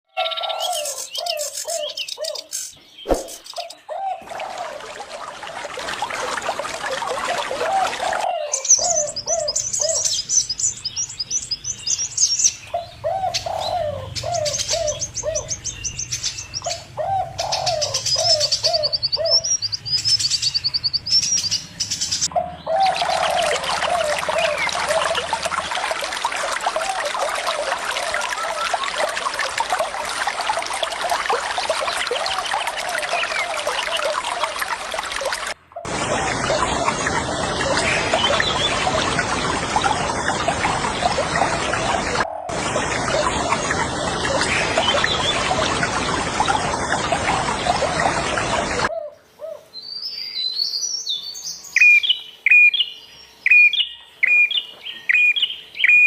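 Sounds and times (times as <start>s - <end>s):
flowing water: 0.4s - 48.9s
small bird twittering: 0.7s - 3.9s
dove-like cooing: 3.2s - 10.1s, 12.7s - 15.5s, 16.6s - 19.4s, 22.3s - 49.6s.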